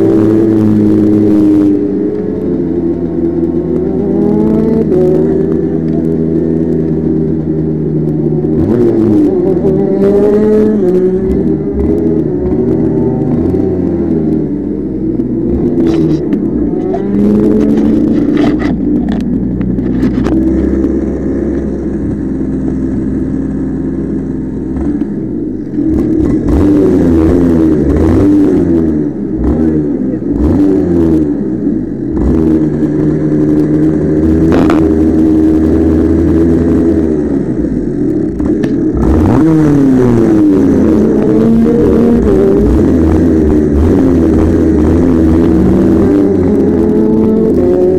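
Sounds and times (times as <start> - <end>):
vehicle engine revving: 0.0 - 47.9.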